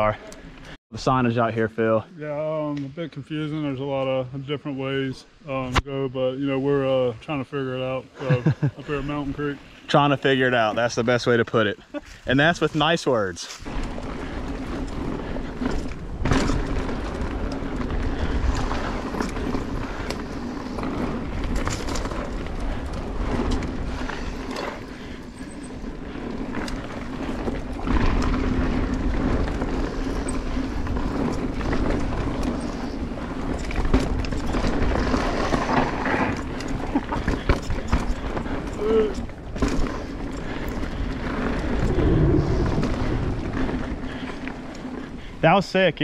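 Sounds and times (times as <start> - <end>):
tyres rolling over dirt: 8.2 - 46.0
bike rattling: 8.4 - 46.0
wind rushing on microphone: 40.8 - 44.1.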